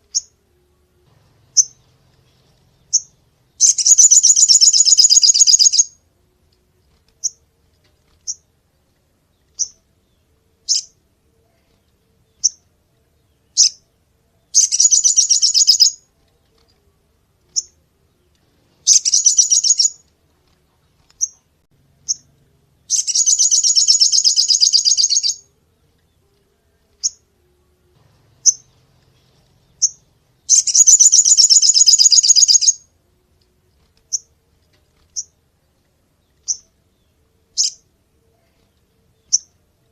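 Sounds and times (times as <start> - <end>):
songbird sharp high chirps: 0.0 - 0.4, 1.2 - 6.0, 9.4 - 11.0, 11.6 - 16.1, 17.5 - 20.1, 21.1 - 27.3, 28.2 - 32.9, 35.1 - 35.4, 36.2 - 39.6
songbird rapid high trills: 1.3 - 6.0, 14.6 - 16.0, 18.8 - 20.0, 22.9 - 25.5, 28.1 - 32.9.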